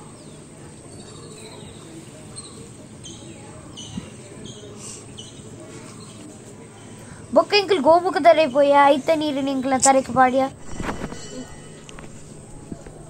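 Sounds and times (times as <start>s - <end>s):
small bird chirping: 0.0s - 6.2s
low background hum: 0.0s - 13.0s.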